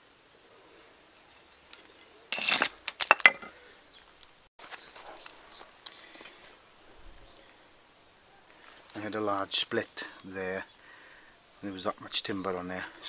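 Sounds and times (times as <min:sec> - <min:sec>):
wood splitting crack: 0:02.3 - 0:03.5
axe striking wood: 0:02.4 - 0:03.5
sharp knocks and clatter: 0:02.9 - 0:03.5.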